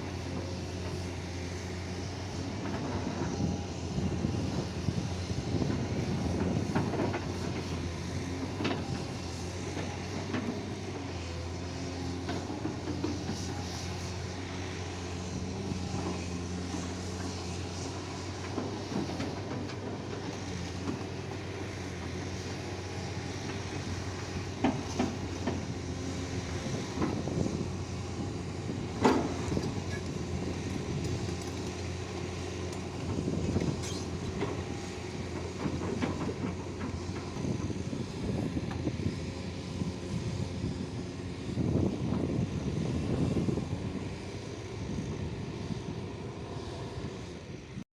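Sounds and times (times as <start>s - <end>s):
excavator diesel engine running: 0.0s - 47.8s.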